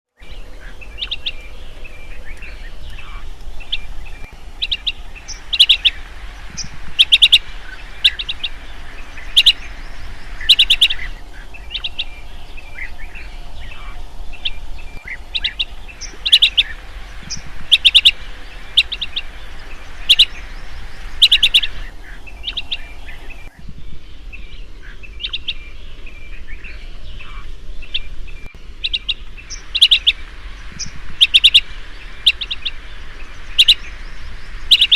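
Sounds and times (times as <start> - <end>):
bird ringing chirps: 10.3 - 23.5.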